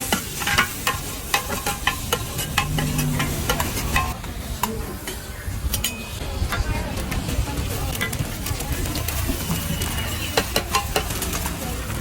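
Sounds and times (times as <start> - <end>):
food sizzling in a pan: 0.0 - 4.2
metal spatula clanking on pan: 0.0 - 4.2.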